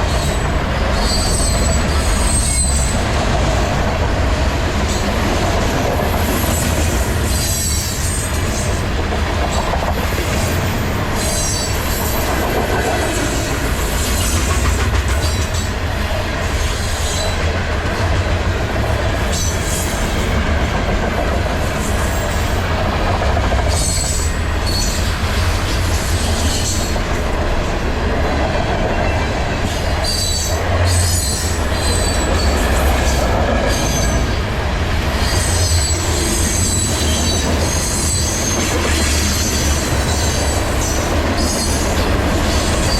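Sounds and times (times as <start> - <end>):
steel wheels rumbling on rail: 0.0 - 42.9
high wheel squeal: 0.1 - 3.0.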